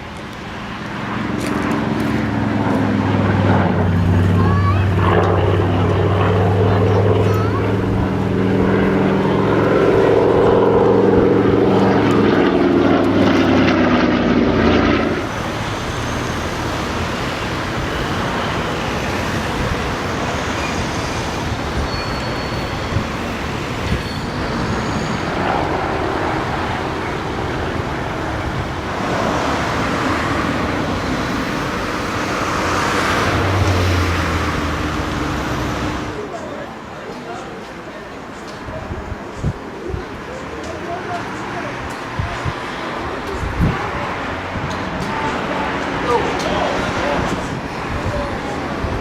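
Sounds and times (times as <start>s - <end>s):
aircraft engine drone: 0.0s - 49.0s
steady rushing noise: 0.0s - 49.0s.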